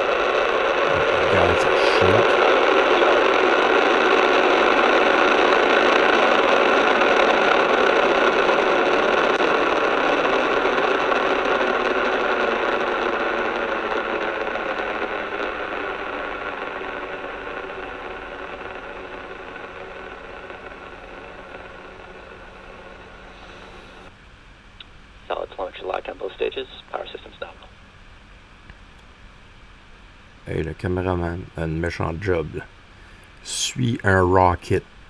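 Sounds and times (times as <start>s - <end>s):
rocket engines roaring: 0.0s - 24.1s.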